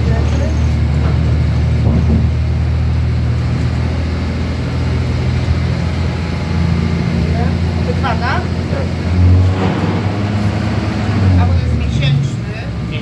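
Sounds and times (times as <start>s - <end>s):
diesel engine drone: 0.0s - 13.0s
train wheels on track: 9.1s - 13.0s.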